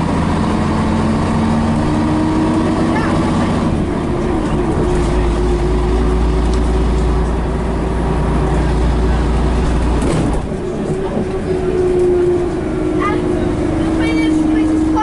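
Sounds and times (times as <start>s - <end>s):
bus diesel engine drone: 0.0s - 15.0s.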